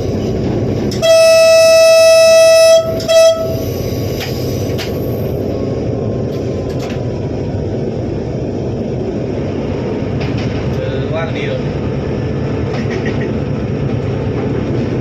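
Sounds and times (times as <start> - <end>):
train rumbling: 0.0 - 15.0
train horn blasts: 0.9 - 3.7.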